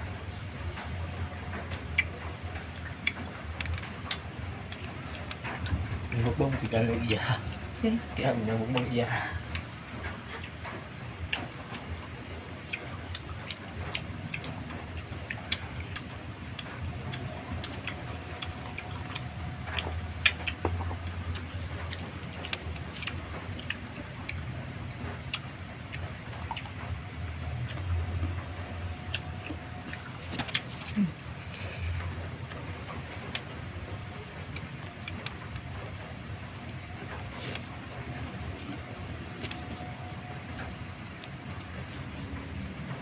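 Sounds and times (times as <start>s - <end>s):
low steady rumble: 0.0s - 43.0s
wet chewing smacks: 12.6s - 33.6s.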